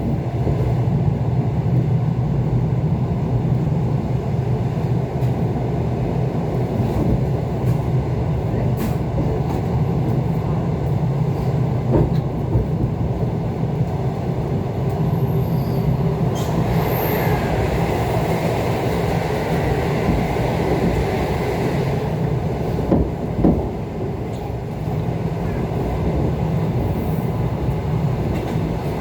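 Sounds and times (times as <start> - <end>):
train wheels rumbling on track: 0.0 - 29.0.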